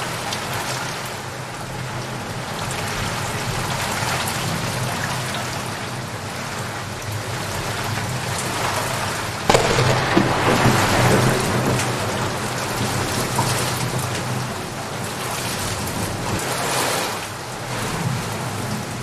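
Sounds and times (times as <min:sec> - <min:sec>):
steady rain: 0:00.0 - 0:19.0
thunderclap: 0:09.5 - 0:16.2.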